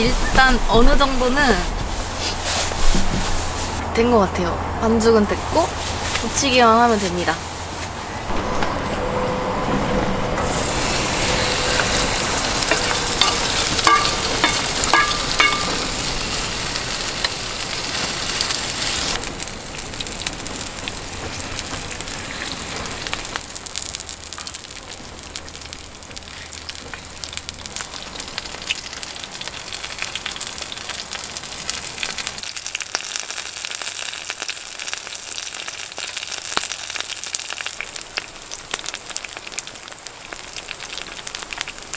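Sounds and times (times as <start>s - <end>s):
batter sizzling in hot oil: 10.4s - 41.9s.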